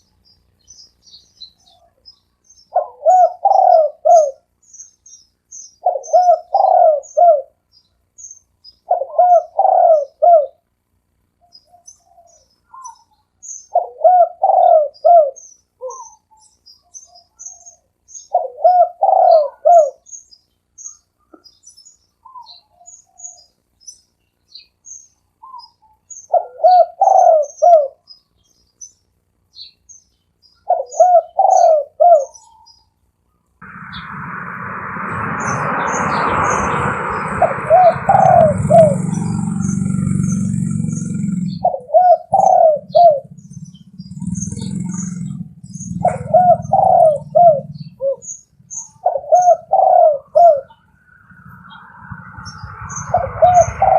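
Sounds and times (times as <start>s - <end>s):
small birds chirping: 0.0s - 34.6s, 38.0s - 53.9s
dove cooing: 2.7s - 4.4s, 5.8s - 7.5s, 8.9s - 10.6s, 13.7s - 16.1s, 18.3s - 20.0s, 26.3s - 28.0s, 30.7s - 32.4s, 37.7s - 48.4s, 49.0s - 50.8s
loud rushing noise: 33.6s - 41.4s, 50.8s - 53.9s.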